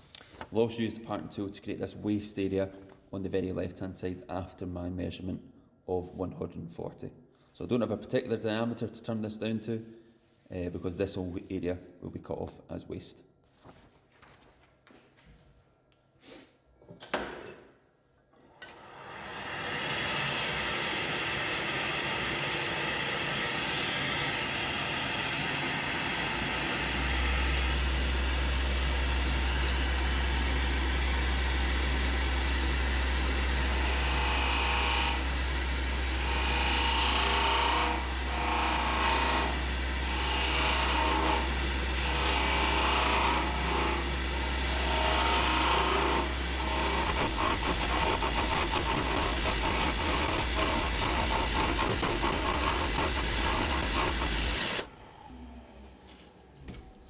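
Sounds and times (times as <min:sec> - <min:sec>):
wood lathe running: 0:18.7 - 0:54.9
parting tool scraping wood: 0:46.8 - 0:54.8.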